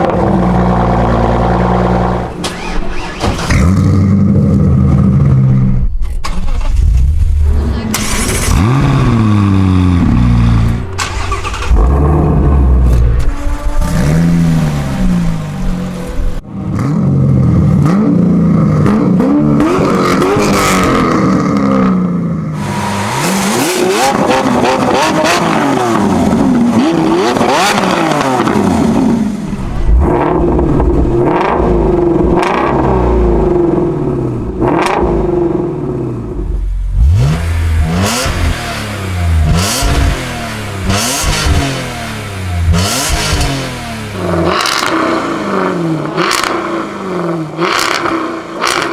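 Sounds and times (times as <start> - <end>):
car engines revving hard: 0.0 - 5.8, 6.6 - 48.9.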